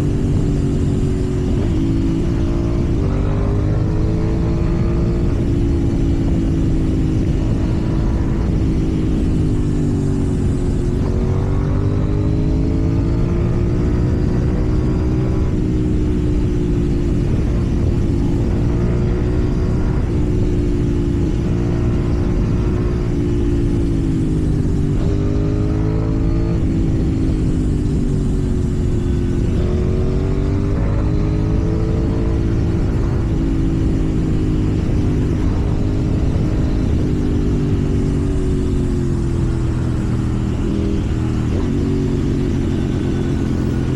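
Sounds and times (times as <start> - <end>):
motorcycle engine revving: 0.0 - 43.9
wind and road noise: 0.0 - 43.9.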